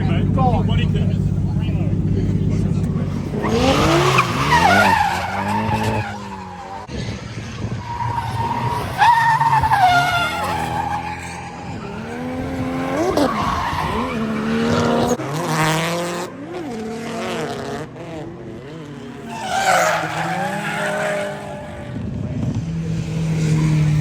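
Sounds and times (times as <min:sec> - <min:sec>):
car engine revving: 0:00.0 - 0:24.0
tyres squealing: 0:02.0 - 0:06.9, 0:07.8 - 0:15.2, 0:19.3 - 0:21.8.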